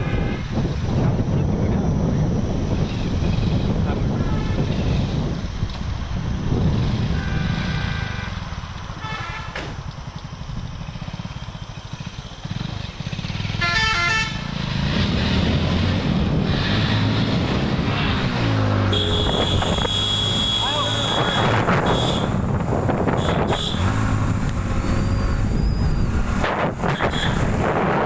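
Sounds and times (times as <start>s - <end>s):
vehicle horn: 0.0s - 0.8s, 4.1s - 5.0s, 7.0s - 9.7s, 13.6s - 14.5s, 18.9s - 24.3s, 26.9s - 27.6s
motorcycle engine running: 0.6s - 28.0s.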